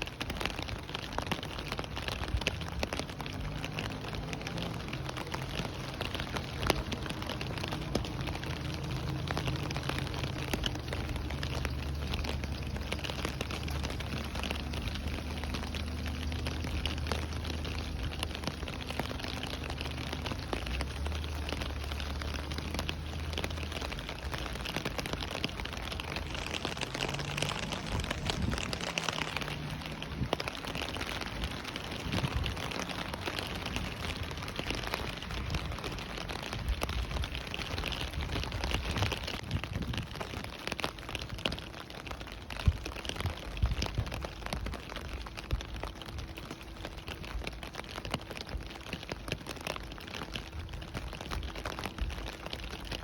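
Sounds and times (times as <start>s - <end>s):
steady rain falling: 0.0s - 53.0s
low rumble: 2.2s - 40.2s.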